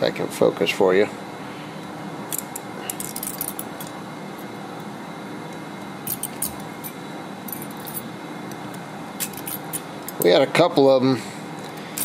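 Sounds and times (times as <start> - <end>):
shop hum: 0.0 - 12.0.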